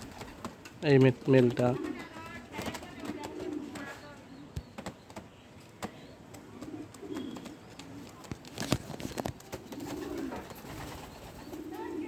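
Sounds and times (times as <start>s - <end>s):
pigeons cooing: 1.4s - 4.6s, 5.9s - 8.2s, 9.0s - 12.0s.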